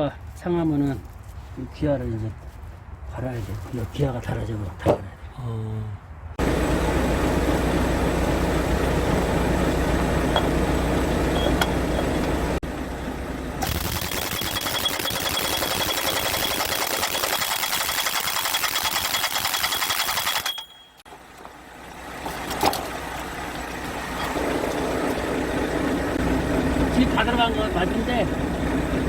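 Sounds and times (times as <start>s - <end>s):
low hum: 6.0s - 13.9s
power tool rattling and whining: 13.6s - 20.6s.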